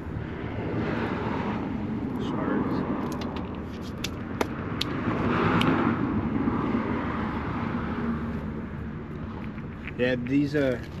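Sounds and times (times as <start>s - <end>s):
stones clicking together: 9.4s - 11.0s.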